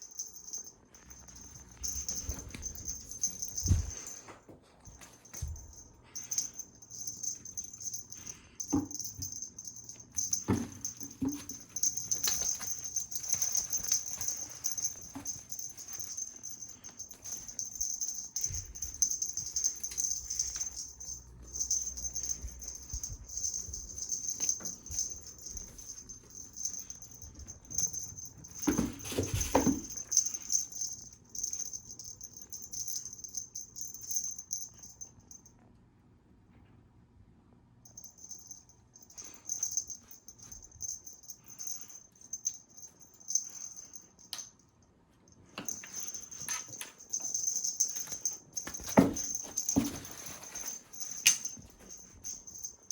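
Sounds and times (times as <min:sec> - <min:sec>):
cat toy rattling: 0:05.0 - 0:35.0, 0:45.7 - 0:52.9.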